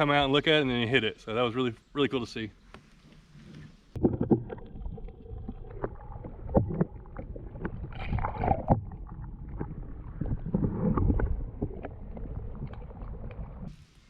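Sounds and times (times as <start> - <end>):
paddle splashing water: 3.2 - 13.9.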